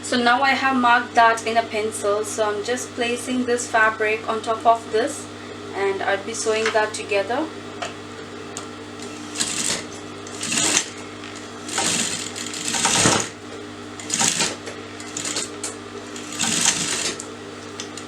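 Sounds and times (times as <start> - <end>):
sewing machine stitching: 9.0 - 13.4, 14.0 - 18.0.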